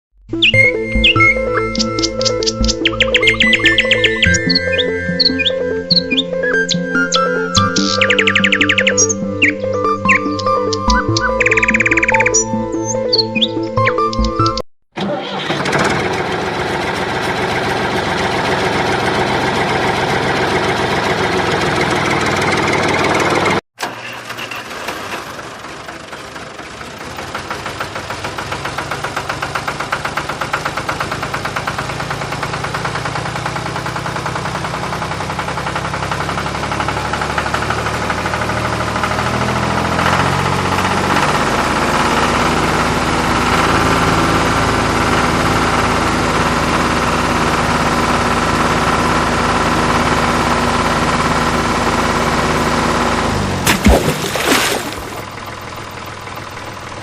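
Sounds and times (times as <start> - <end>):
tractor engine knocking: 15.0 - 24.0, 24.7 - 53.6, 55.2 - 57.0.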